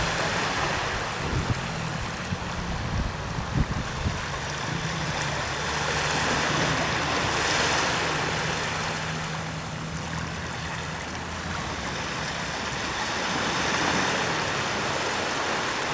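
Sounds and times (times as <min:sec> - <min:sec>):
waves washing on sandy beach: 0:00.0 - 0:15.9.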